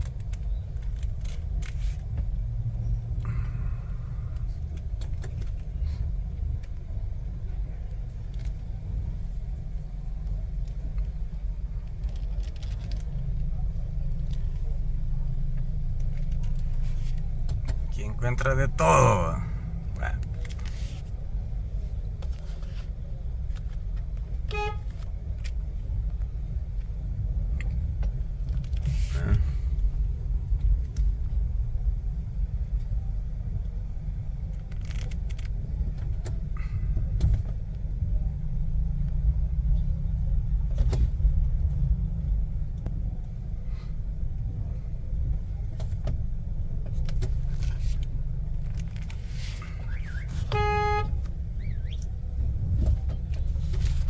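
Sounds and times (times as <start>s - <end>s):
street traffic rumble: 0.0s - 54.0s
car horn toots: 24.5s - 25.0s, 50.0s - 51.3s.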